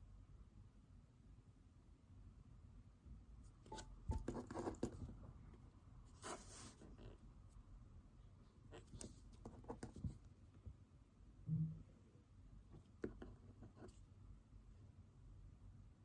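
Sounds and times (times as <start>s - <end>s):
pen scratching on paper: 3.6s - 5.2s, 8.7s - 10.2s.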